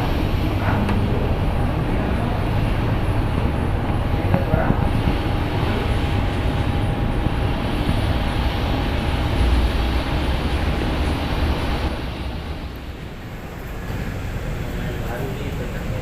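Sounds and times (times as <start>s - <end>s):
airliner engines rumbling: 0.0s - 16.0s.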